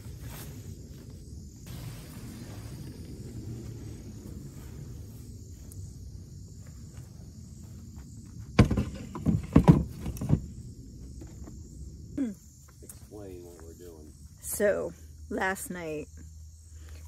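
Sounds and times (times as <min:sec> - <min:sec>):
low rumble: 0:00.0 - 0:08.0
insects trilling: 0:00.0 - 0:17.0
knocks and clatters: 0:08.6 - 0:10.5.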